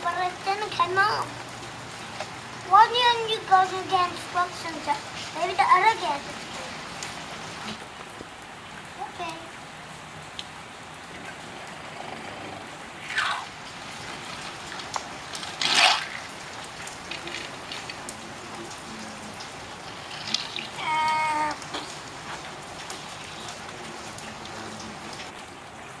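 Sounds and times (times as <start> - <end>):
light rain on concrete: 0.0 - 26.0
water splashing in puddle: 13.0 - 25.4.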